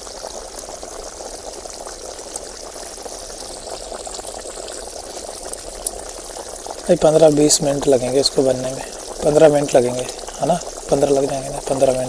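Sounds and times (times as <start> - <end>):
faint crackles: 0.0 - 12.0
tandoor hissing: 2.5 - 12.0.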